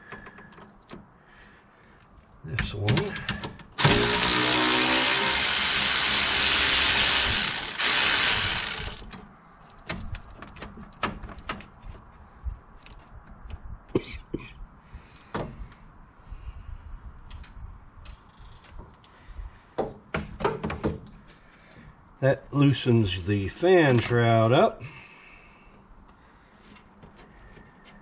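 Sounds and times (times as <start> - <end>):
handheld power tool spinning: 3.8 - 9.2.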